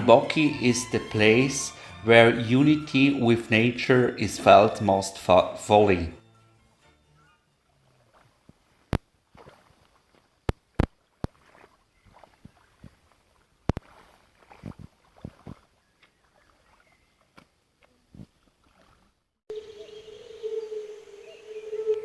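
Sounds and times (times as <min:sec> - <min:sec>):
steady low tone with hiss: 0:19.5 - 0:22.0.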